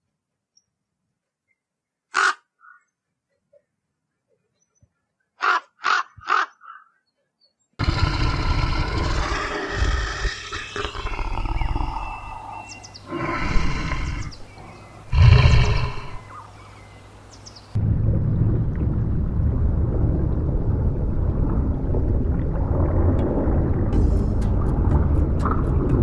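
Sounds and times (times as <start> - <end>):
rough animal calls: 7.8 - 17.0
short bird calls: 10.1 - 17.7
deep steady rumble: 17.8 - 26.0.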